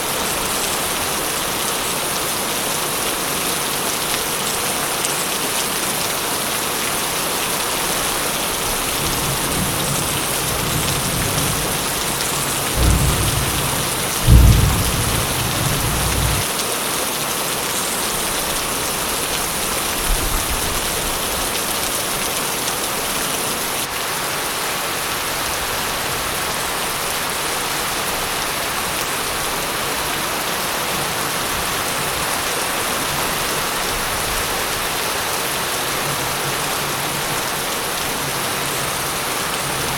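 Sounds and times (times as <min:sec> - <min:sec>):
heavy rain: 0:00.0 - 0:39.9
thunder rumbling: 0:09.0 - 0:16.5.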